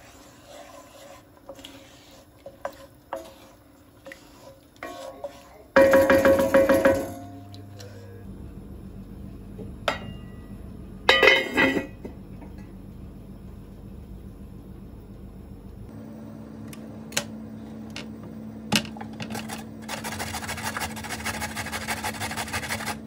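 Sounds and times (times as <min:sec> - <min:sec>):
steady low hum: 0:00.0 - 0:23.0
dishes and utensils clattering: 0:11.1 - 0:12.6.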